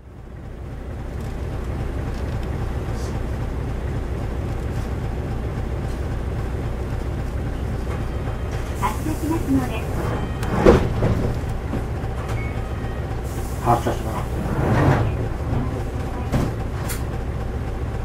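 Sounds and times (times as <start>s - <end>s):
diesel bus engine idling: 0.0s - 18.0s.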